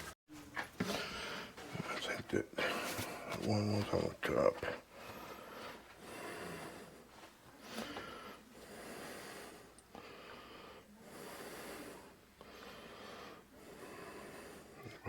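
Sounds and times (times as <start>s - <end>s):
faint breathing: 0.8s - 1.9s, 4.6s - 15.0s.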